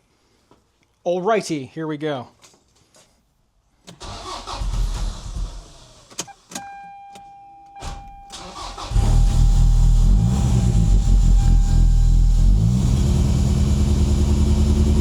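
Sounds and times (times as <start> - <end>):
car engine cranking and starting: 3.9 - 6.6, 7.8 - 15.0.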